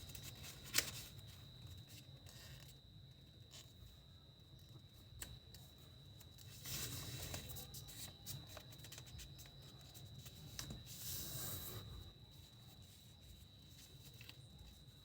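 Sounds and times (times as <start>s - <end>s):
paper rustling: 0.0s - 2.7s
paper folding and crinkling: 0.0s - 2.8s, 6.2s - 15.0s
faint high-pitched whine: 0.0s - 15.0s.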